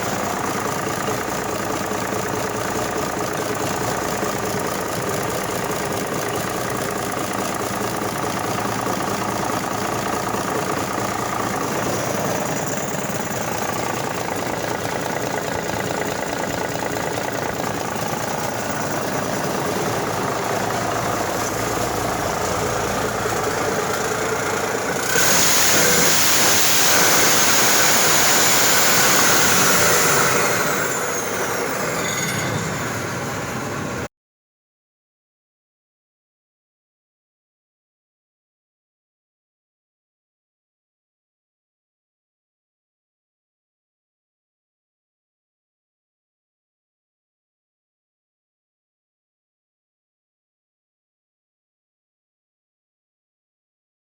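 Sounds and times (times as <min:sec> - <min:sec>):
diesel engine running and revving: 0:00.0 - 0:34.1
high engine whine: 0:00.0 - 0:34.1.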